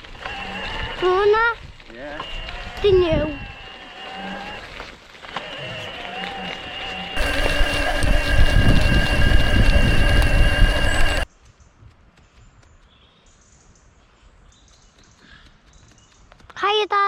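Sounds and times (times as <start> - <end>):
bicycle tyre noise: 0.0 - 11.3
steady high whine: 6.9 - 11.3
wind rumble: 7.2 - 11.3.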